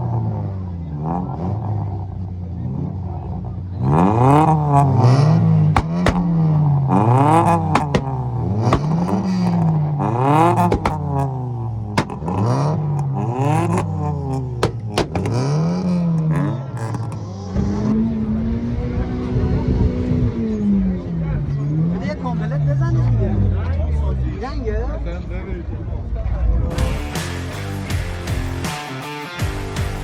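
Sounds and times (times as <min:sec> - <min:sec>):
exhaust pops and cracks: 0:05.0 - 0:06.7, 0:07.4 - 0:09.7, 0:10.4 - 0:17.2.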